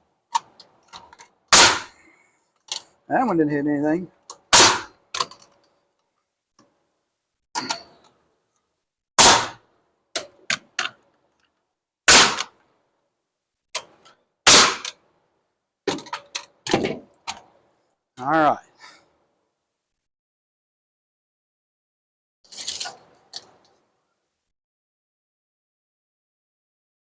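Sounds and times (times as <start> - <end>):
hammer driving nails into wood: 1.5 - 2.0, 4.3 - 5.4, 9.2 - 9.6, 12.1 - 12.6, 13.8 - 15.0.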